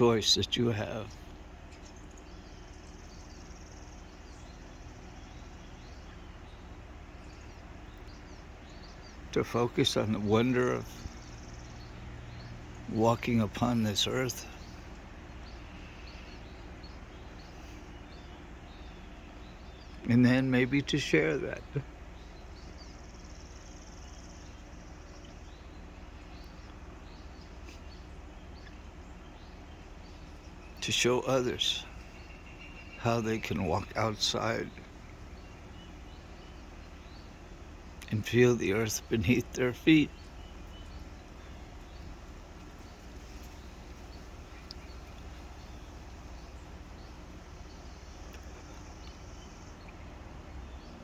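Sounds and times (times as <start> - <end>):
distant bird chirps: 0.0 - 51.0
low background noise: 0.0 - 51.0
steady low hum: 0.0 - 51.0
fast high bird trill: 29.2 - 49.8.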